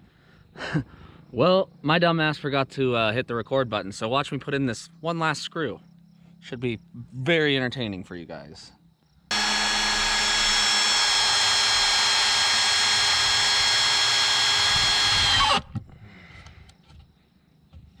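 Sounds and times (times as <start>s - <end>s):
power drill driving screw into wood: 9.3s - 15.8s.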